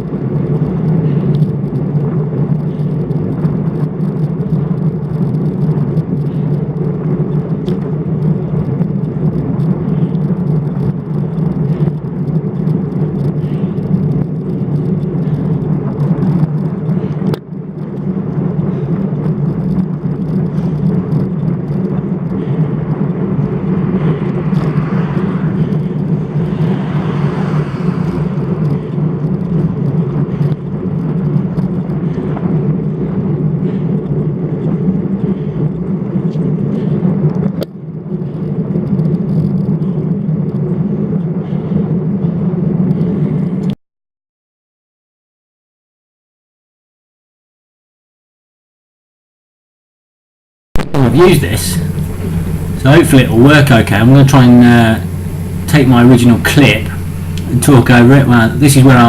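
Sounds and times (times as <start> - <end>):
bicycle road noise: 0.0 - 43.7, 50.8 - 59.0
wind on camera microphone: 50.8 - 59.0.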